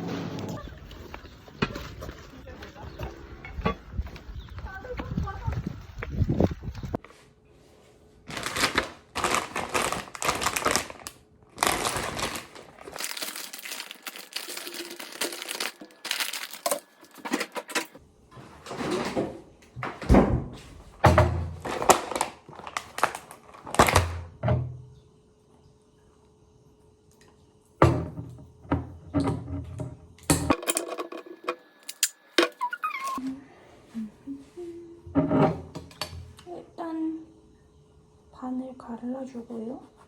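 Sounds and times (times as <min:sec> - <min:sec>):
packaging crinkling and rustling: 0:08.3 - 0:18.0, 0:21.6 - 0:24.2.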